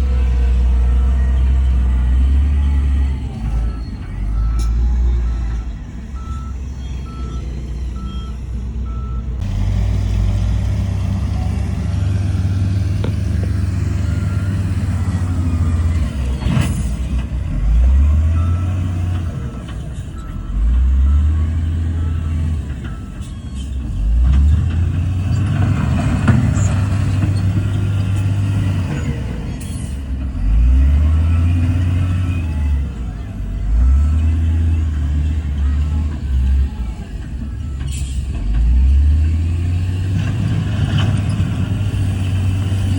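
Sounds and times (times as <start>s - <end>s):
reversing beeper: 0.0s - 10.4s, 11.0s - 24.2s
diesel engine revving: 0.0s - 42.9s.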